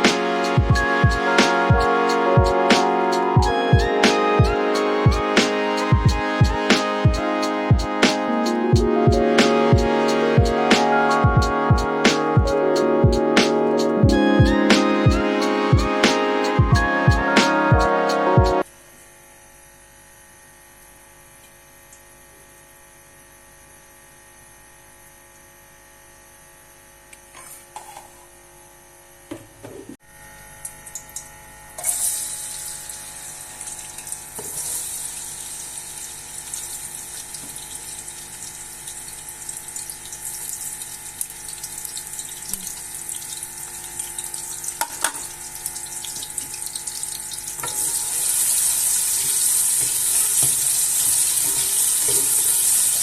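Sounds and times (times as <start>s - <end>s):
water running from tap: 31.8s - 53.0s.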